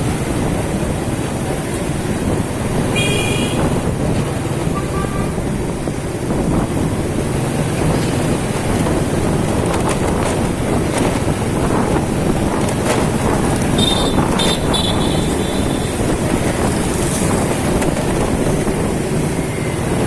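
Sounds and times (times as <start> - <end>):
street traffic: 0.0 - 20.0
wind buffeting the microphone: 0.0 - 20.0
motorcycle engine: 12.6 - 19.0
horn beeps: 13.7 - 16.2.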